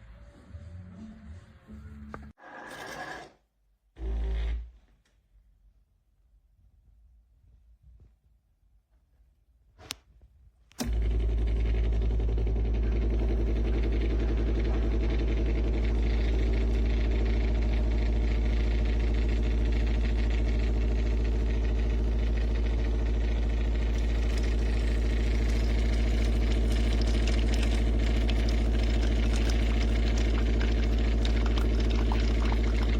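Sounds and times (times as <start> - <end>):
coffee maker pump humming: 10.8 - 32.9
coffee splashing: 23.8 - 32.9.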